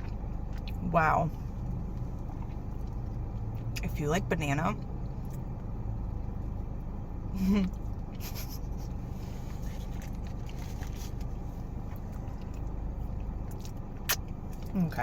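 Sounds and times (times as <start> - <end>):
low car cabin hum: 0.0 - 15.0
person chewing: 7.7 - 14.8.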